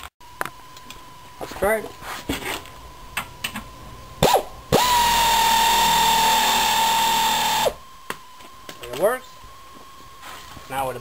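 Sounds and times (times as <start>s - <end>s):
air tool whining: 4.2s - 7.8s.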